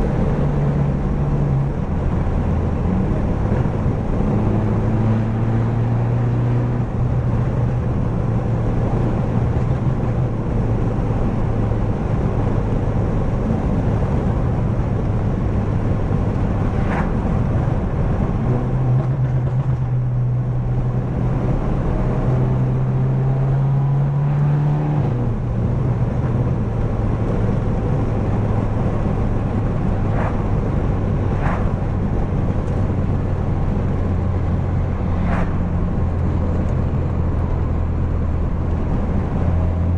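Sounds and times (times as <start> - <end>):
car engine exhaust drone: 0.0 - 39.9.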